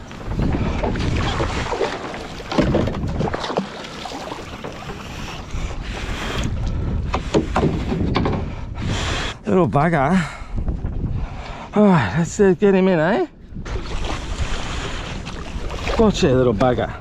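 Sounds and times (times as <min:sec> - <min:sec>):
water washing around kayak: 0:00.0 - 0:08.2, 0:13.6 - 0:17.0
wind buffeting microphone: 0:00.0 - 0:17.0.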